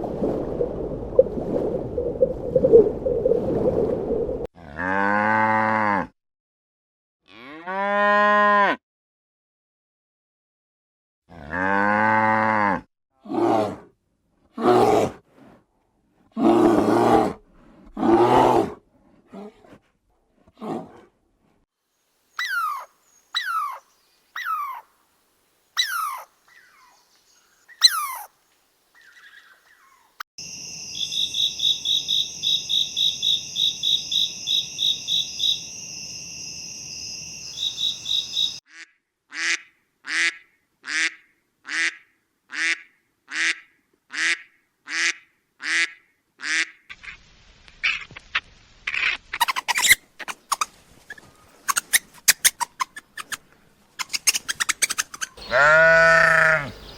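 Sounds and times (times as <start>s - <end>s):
animal calls: 22.4s - 23.8s, 25.8s - 27.0s, 54.0s - 56.9s.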